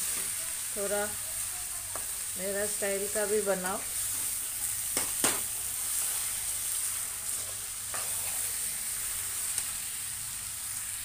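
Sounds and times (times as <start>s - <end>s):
meat sizzling in a pan: 0.0s - 11.0s
knocks on a pan: 5.0s - 5.5s
steel spoon scraping a pan: 5.4s - 9.6s.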